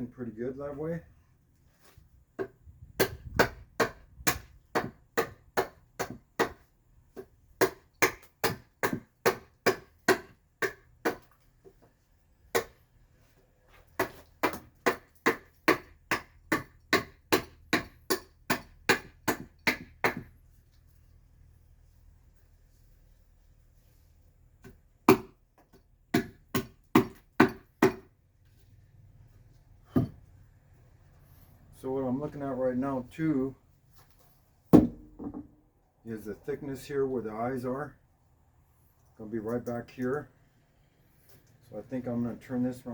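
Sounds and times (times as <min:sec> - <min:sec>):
carving tool chopping into wood: 0:02.4 - 0:11.3, 0:12.5 - 0:12.8, 0:14.0 - 0:20.4, 0:24.6 - 0:25.4, 0:26.1 - 0:28.1, 0:34.8 - 0:35.3.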